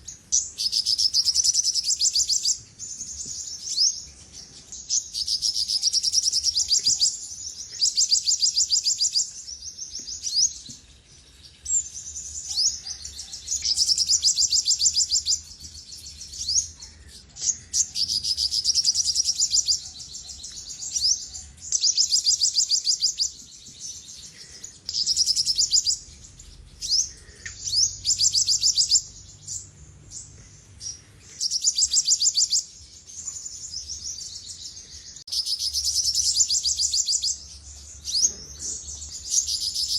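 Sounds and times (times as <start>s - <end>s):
bird twittering trills: 0.0s - 39.9s.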